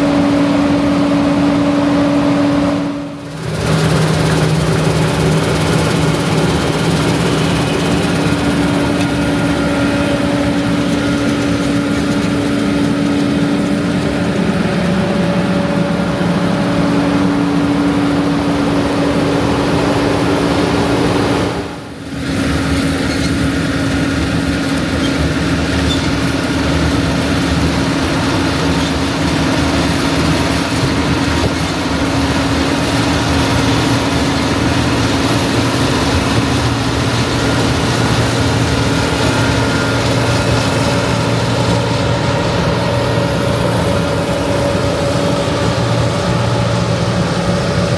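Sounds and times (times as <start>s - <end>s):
combine harvester running: 0.0s - 47.9s.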